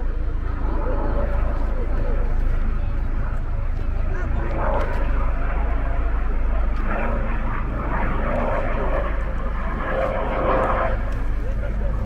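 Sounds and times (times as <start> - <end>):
people talking: 0.0 - 6.2, 10.9 - 12.0
steady low rumble: 0.0 - 12.0.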